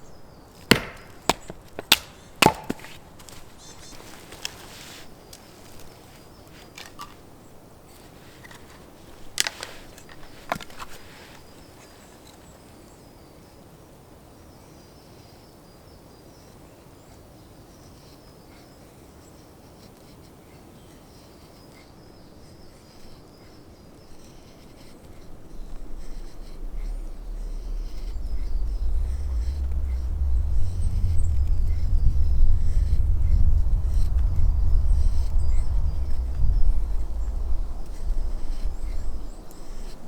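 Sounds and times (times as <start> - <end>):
blade knocking on wood: 0.7 - 3.0
faint insect chirring: 14.5 - 40.0
low rumble: 25.0 - 40.0.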